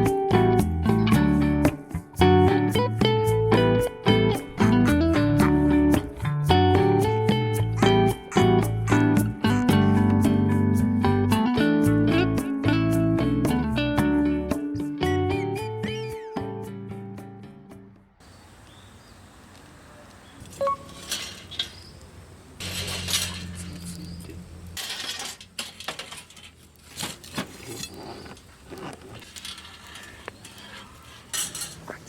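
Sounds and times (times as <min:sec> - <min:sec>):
camp cookware clinking: 0:20.6 - 0:23.9, 0:24.6 - 0:32.0.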